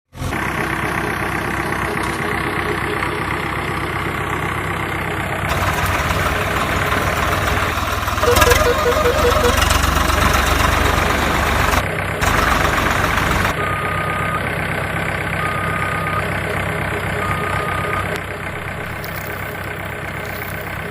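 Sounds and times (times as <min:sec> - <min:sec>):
diesel engines running: 0:00.1 - 0:20.9
short beeps: 0:08.2 - 0:10.4, 0:17.2 - 0:18.7.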